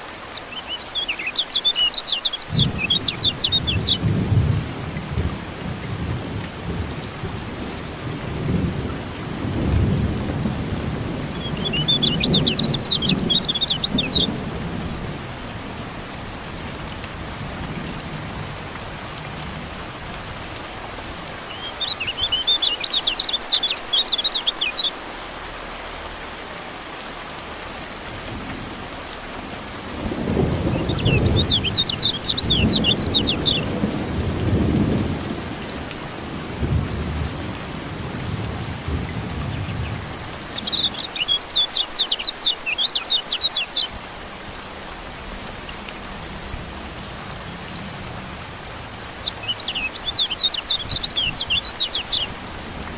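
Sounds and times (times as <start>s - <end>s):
bird twittering song: 0.0s - 4.1s, 11.2s - 14.4s, 21.5s - 25.0s, 30.7s - 33.8s, 35.5s - 52.9s
steady rain: 0.0s - 52.9s
thunder rumbling: 2.5s - 21.2s, 28.1s - 41.0s.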